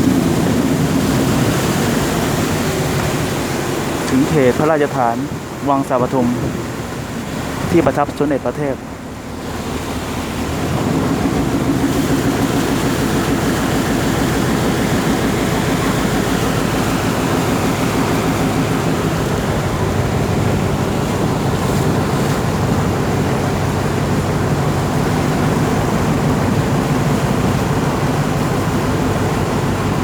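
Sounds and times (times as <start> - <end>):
boat engine running: 0.0 - 30.0
water rushing: 0.0 - 30.0
wind: 0.0 - 30.0.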